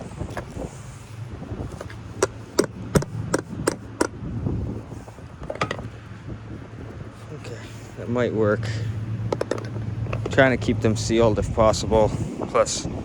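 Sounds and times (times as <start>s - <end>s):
hammer striking chisel: 2.2s - 4.2s.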